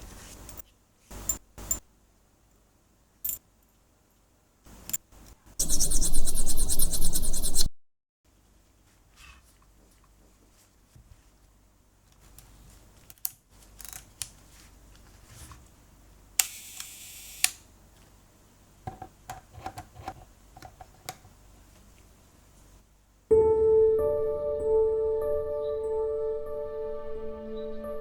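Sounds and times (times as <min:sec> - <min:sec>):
camera shutter clicking: 0:16.4 - 0:17.6
soft piano music: 0:23.3 - 0:28.0.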